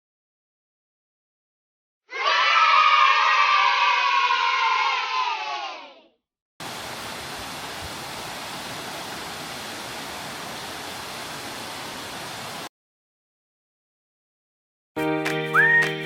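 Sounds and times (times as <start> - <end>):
children cheering: 2.1 - 6.0
rush of falling water: 6.6 - 12.7.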